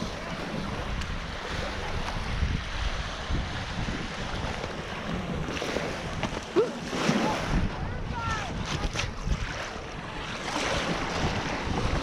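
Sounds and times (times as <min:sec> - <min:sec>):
lake water lapping: 0:00.0 - 0:12.0
wind buffeting microphone: 0:00.0 - 0:12.0.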